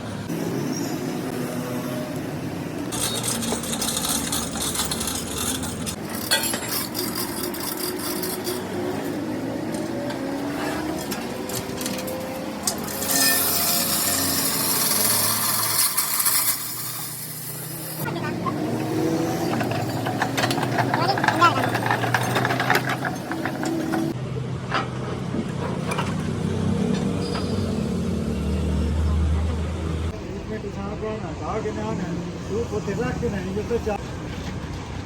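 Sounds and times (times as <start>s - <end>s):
harsh rasping tool: 2.9s - 9.2s, 12.7s - 18.1s.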